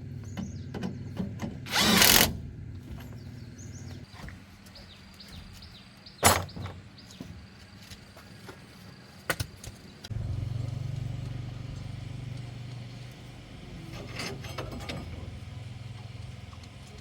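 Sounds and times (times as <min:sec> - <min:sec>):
engine starting and idling: 0:00.0 - 0:04.0, 0:10.1 - 0:17.0.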